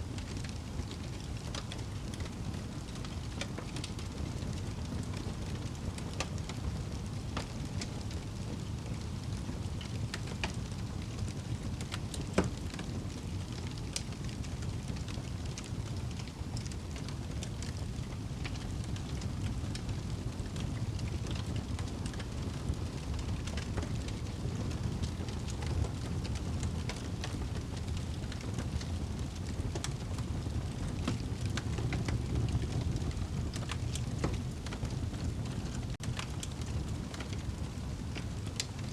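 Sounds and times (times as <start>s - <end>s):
fire crackles and pops: 0.0s - 38.9s
low rumble of flames: 0.0s - 38.9s.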